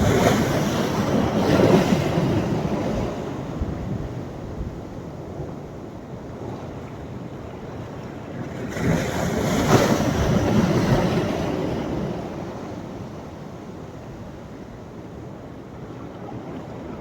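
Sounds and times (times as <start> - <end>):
wave breaking on shore: 0.0 - 3.6.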